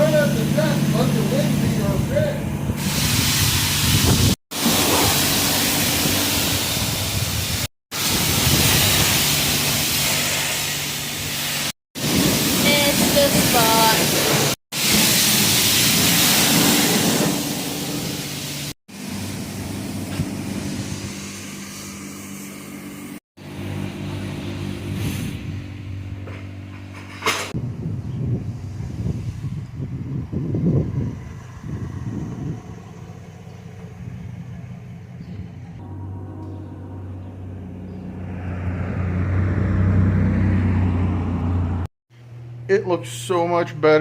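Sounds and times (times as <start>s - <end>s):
pressure washer spraying water: 2.8s - 25.4s.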